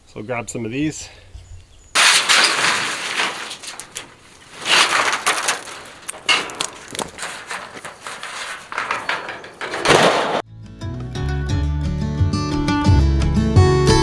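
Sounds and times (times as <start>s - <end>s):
crunching and rustling: 2.0s - 10.4s.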